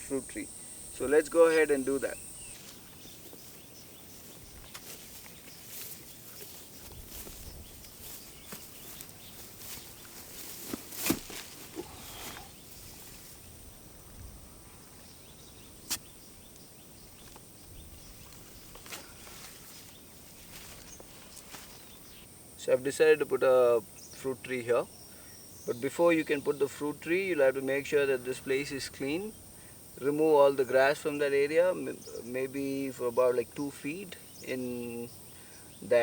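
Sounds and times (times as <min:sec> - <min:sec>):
footsteps through grass: 0:02.1 - 0:13.5, 0:18.1 - 0:22.1.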